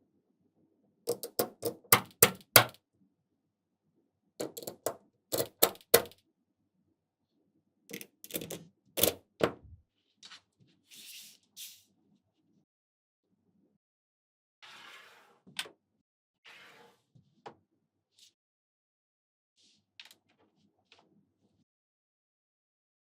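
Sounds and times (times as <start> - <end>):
magnetic balls clicking together: 1.1 - 2.8.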